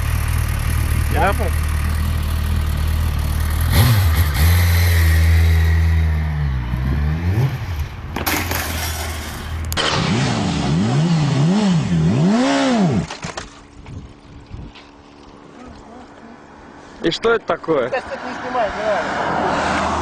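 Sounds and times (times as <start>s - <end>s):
motorcycle engine revving: 0.0s - 13.3s.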